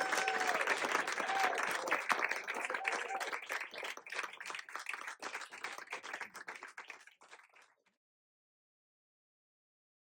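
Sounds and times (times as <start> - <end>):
many hands clapping: 0.0 - 7.9.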